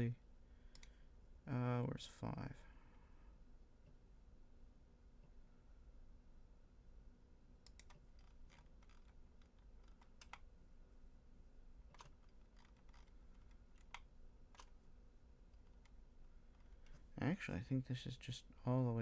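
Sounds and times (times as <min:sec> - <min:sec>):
low steady hum: 0:00.0 - 0:19.0
computer keyboard and mouse clicks: 0:00.7 - 0:00.9, 0:07.6 - 0:10.5, 0:11.9 - 0:14.8.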